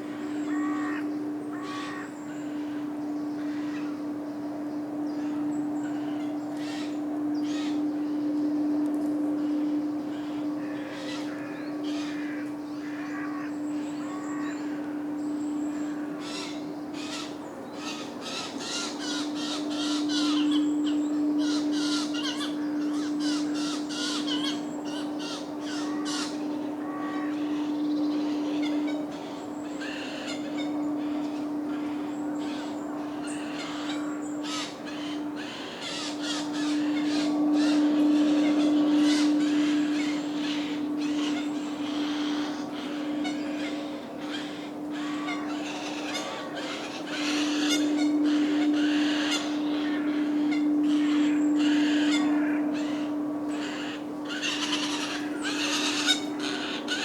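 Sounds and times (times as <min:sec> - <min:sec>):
low hum: 0:00.0 - 0:17.6, 0:18.2 - 0:57.0
small birds twittering: 0:00.0 - 0:57.0
jays harsh rasping calls: 0:33.4 - 0:57.0.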